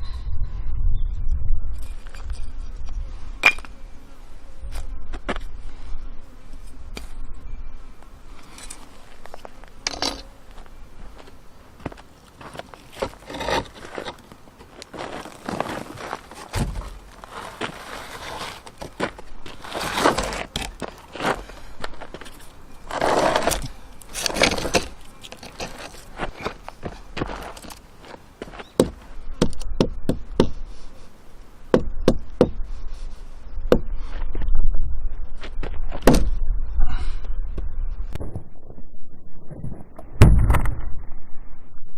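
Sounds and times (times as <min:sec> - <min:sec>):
short scraping bursts: 0:15.0 - 0:21.6, 0:22.3 - 0:27.7.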